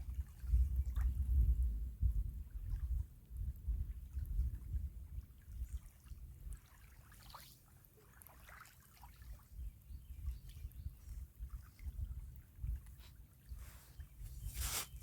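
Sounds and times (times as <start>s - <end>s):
wind rumble on microphone: 0.0s - 6.7s, 9.4s - 15.0s
waves lapping at shore: 5.7s - 9.5s, 12.4s - 15.0s.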